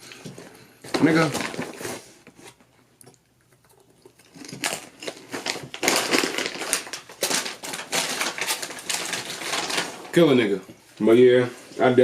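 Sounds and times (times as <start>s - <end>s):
snacks crunching in packaging: 2.4s - 9.9s.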